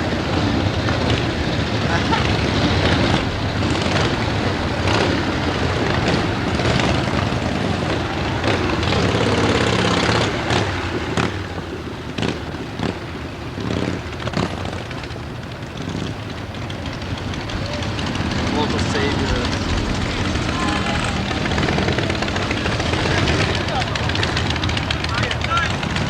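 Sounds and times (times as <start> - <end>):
motorcycle engines rumbling: 0.0 - 26.0.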